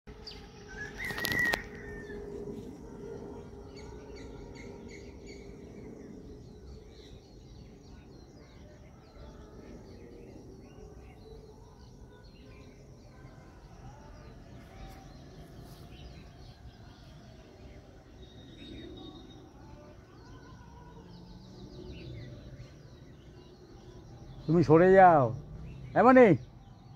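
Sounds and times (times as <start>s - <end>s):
small birds chirping: 0.1s - 26.9s.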